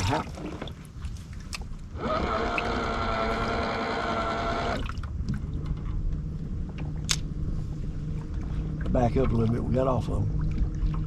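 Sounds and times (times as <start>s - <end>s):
low hum: 0.0s - 11.0s
electric motor whining: 2.0s - 4.8s.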